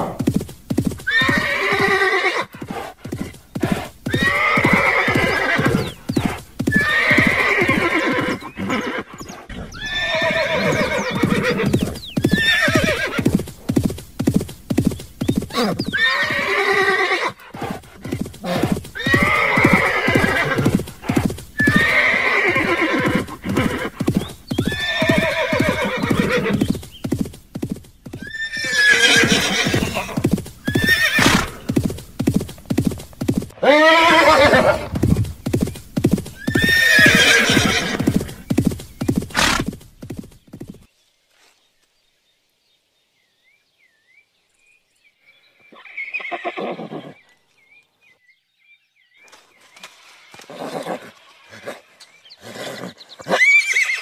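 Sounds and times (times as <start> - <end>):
hooves clip-clopping: 0.0 - 9.4, 10.3 - 40.9
horses neighing: 0.0 - 27.3, 28.1 - 39.8, 45.7 - 47.2, 50.4 - 54.0.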